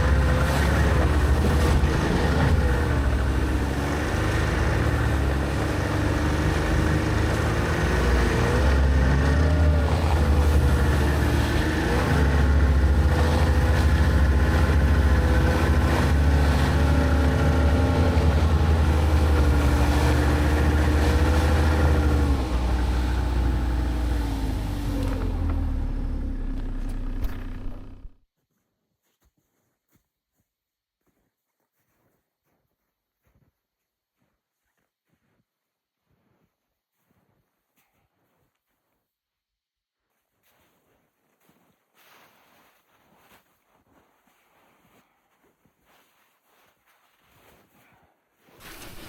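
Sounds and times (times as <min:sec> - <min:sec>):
engine rumbling under load: 0:00.0 - 0:28.2.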